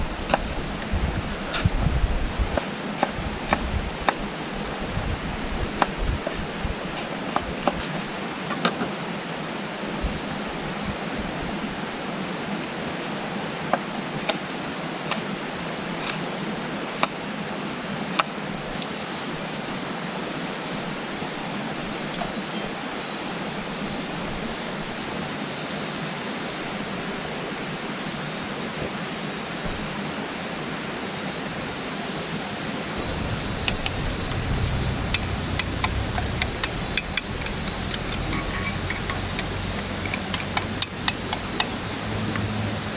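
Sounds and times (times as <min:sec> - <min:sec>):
high steady hiss: 0:00.0 - 0:42.9
running water: 0:00.0 - 0:42.9
low rumble: 0:33.0 - 0:40.0
sharp clicks: 0:33.0 - 0:41.9.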